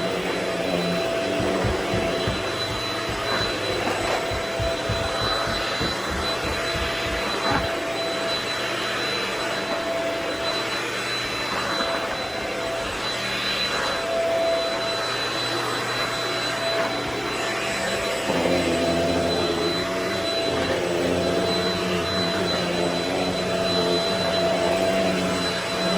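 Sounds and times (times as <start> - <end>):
vacuum cleaner running: 0.0 - 25.9.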